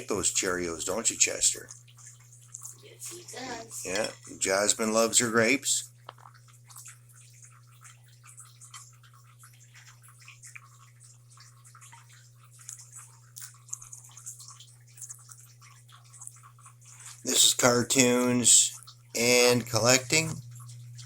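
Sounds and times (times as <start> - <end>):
steady low hum: 0.0 - 21.0
parrots pecking food: 6.0 - 17.8.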